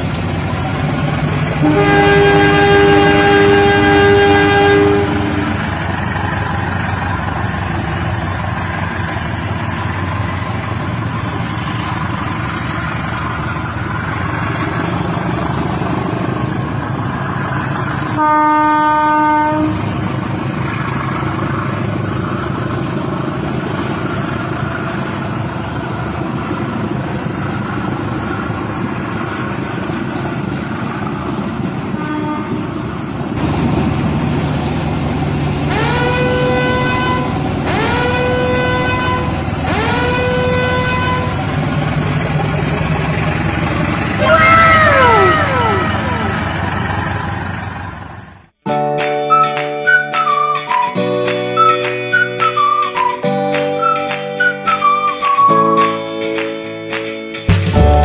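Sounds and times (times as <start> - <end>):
toy train horn: 1.6 - 5.7, 18.2 - 19.8, 32.0 - 32.7, 35.7 - 41.4.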